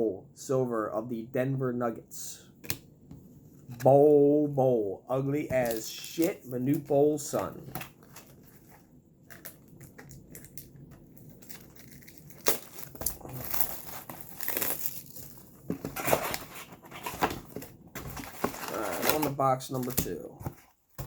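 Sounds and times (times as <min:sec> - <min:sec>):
packaging crinkling: 0:05.5 - 0:20.2.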